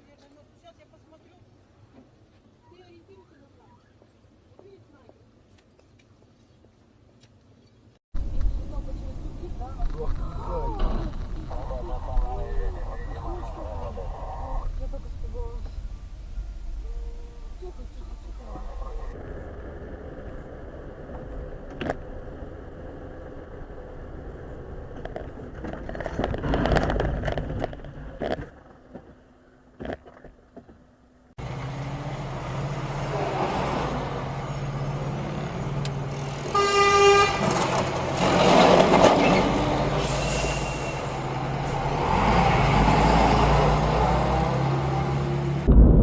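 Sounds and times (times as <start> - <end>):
road traffic: 0.0 - 46.0
car horn honking: 36.5 - 37.6.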